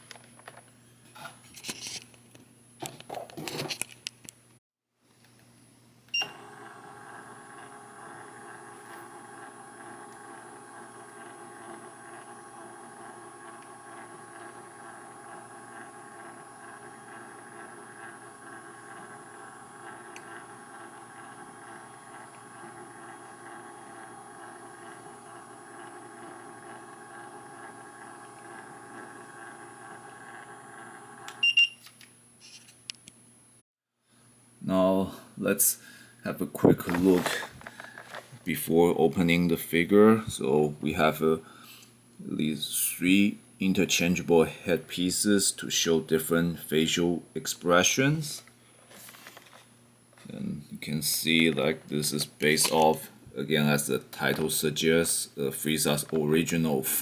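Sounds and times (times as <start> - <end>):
electric appliance humming: 6.2 - 31.5, 36.6 - 39.4.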